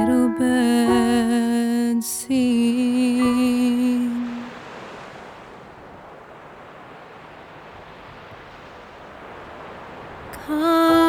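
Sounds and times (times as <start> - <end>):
woman singing a wavering note: 0.0 - 4.6, 10.4 - 11.0
soft wash of noise: 0.0 - 11.0.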